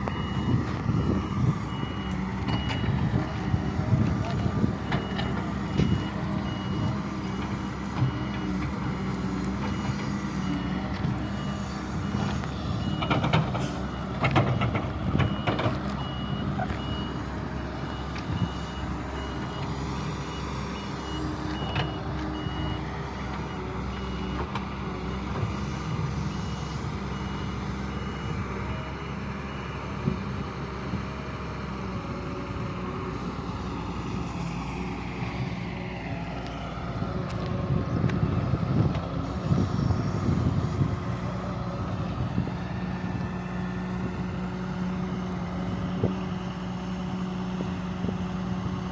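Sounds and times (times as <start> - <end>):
reversing alarm beeping: 0.0 - 30.0
excavator diesel engine running: 0.0 - 48.9.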